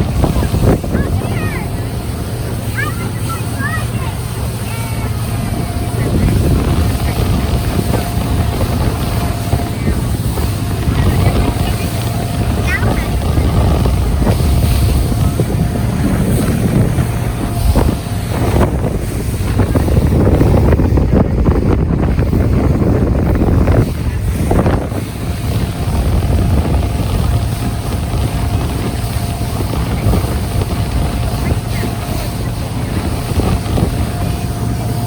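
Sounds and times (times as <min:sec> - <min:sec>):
outboard motor running: 0:00.0 - 0:35.0
wind buffeting microphone: 0:00.0 - 0:35.0.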